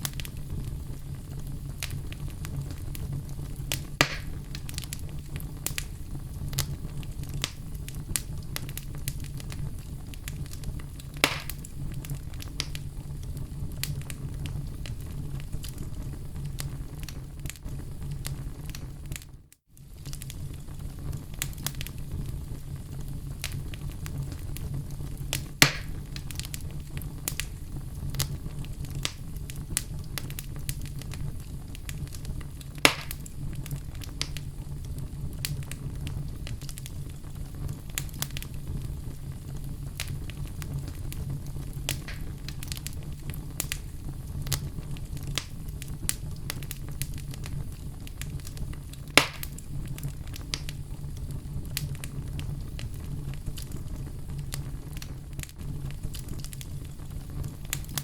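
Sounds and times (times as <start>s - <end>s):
fire burning with crackles: 0.0s - 58.0s
loud wood pops: 4.0s - 4.4s, 11.2s - 11.6s, 25.6s - 26.0s, 32.8s - 33.2s, 41.9s - 42.4s, 49.2s - 49.6s.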